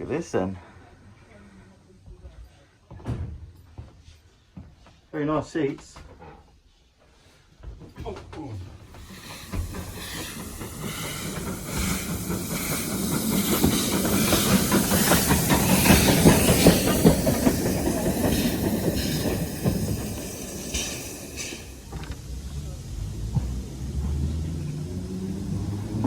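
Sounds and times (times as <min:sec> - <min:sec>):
train passing with wheel clicks: 0:08.8 - 0:26.0.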